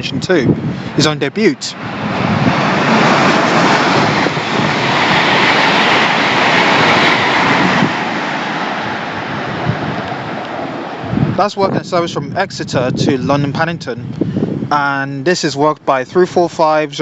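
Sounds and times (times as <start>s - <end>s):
train passing with rushing noise: 0.4s - 12.3s.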